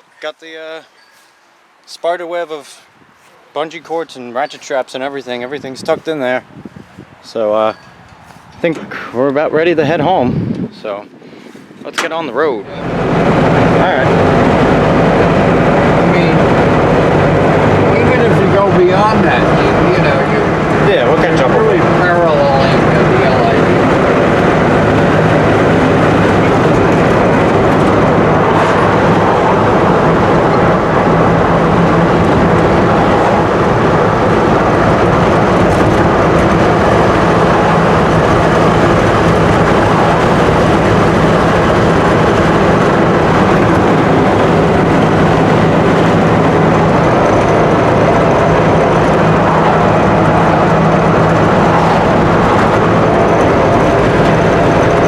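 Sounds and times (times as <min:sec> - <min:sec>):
truck engine and road noise: 0:00.0 - 0:55.0
low hum: 0:12.6 - 0:55.0.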